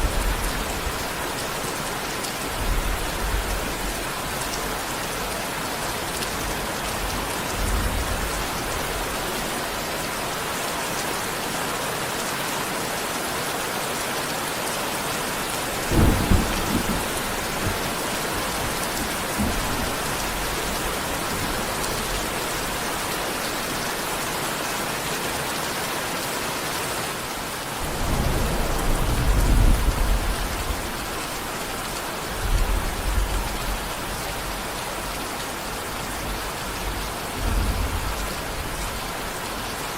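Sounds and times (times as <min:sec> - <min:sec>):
steady rain: 0:00.0 - 0:39.9
thunder clap and rumbles: 0:15.8 - 0:21.6, 0:27.8 - 0:30.9, 0:36.8 - 0:38.9.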